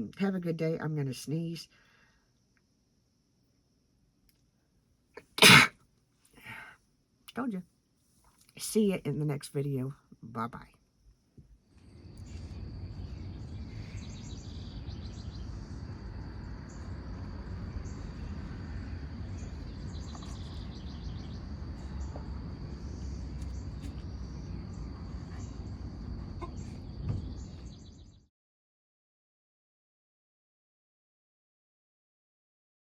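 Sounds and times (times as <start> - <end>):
low rumble: 11.8 - 28.2
bird-like chirps: 17.8 - 25.7, 26.3 - 28.2.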